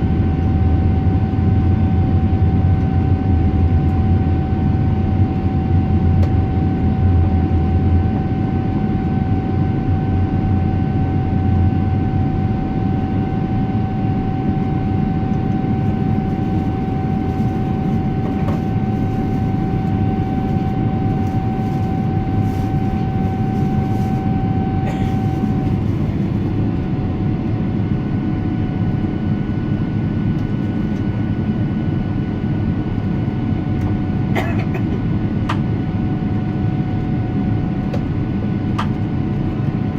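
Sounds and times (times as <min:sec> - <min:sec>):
airliner cabin drone: 0:00.0 - 0:39.9
thin steady whine: 0:00.2 - 0:28.4.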